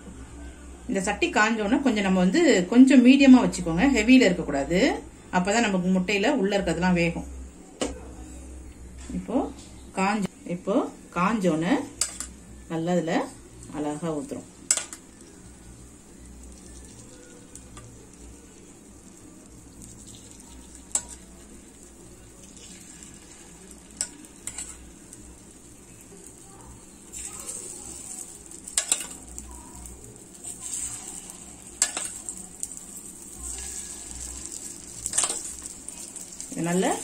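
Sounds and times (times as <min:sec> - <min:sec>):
batter sizzling in hot oil: 0:11.3 - 0:37.0
metal spoon clicking on pan: 0:12.0 - 0:12.3, 0:14.7 - 0:15.0, 0:28.7 - 0:29.2, 0:31.8 - 0:32.2.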